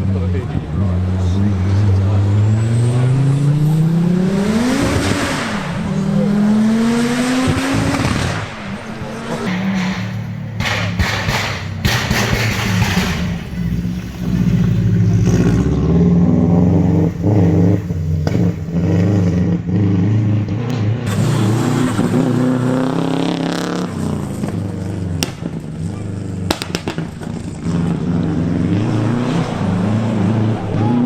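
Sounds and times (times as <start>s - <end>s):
rally car engines revving: 0.0s - 31.0s
sharp cracks: 9.5s - 15.9s, 16.5s - 19.3s, 26.5s - 27.4s.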